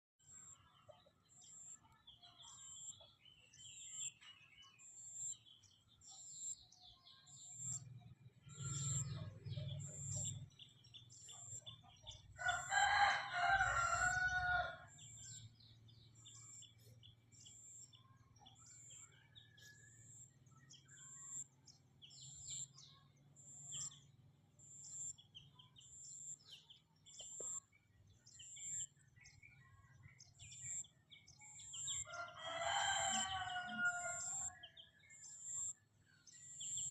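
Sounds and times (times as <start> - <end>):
small birds chirping: 0.2 - 36.9
rooster crowing: 12.4 - 15.0, 32.0 - 34.5.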